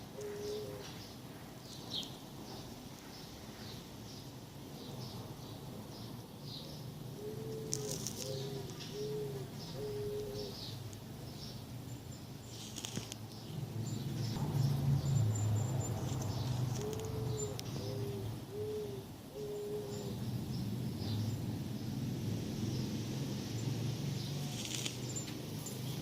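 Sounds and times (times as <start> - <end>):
small birds chirping: 0.0 - 26.0
bird hooting: 0.2 - 0.9, 7.2 - 10.6, 16.8 - 20.2.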